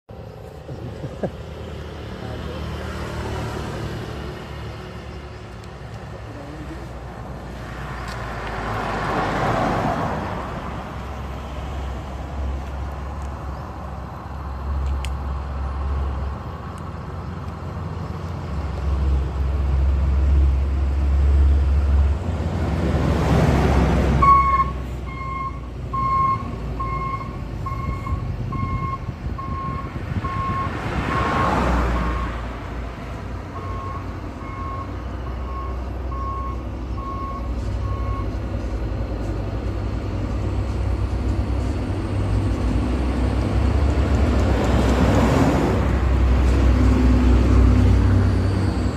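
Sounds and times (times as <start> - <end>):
truck engines rumbling: 0.1 - 48.9
vehicles passing: 0.1 - 48.9
reversing alarm beeping: 24.2 - 32.4, 33.6 - 38.4.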